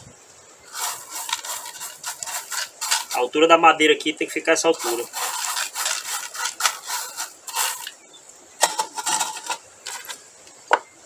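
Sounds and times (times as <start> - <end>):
crushed stone crunching in wooden box: 4.8 - 8.0.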